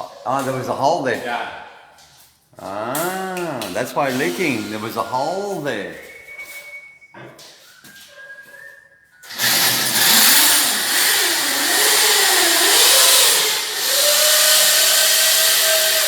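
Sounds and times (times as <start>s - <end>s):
power tool motor whining: 9.3s - 16.0s.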